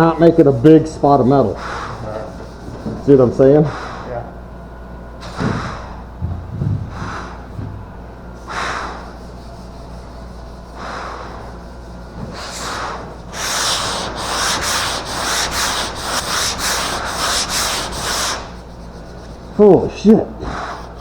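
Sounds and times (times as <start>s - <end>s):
sandpaper rasping on car roof: 11.5s - 19.5s.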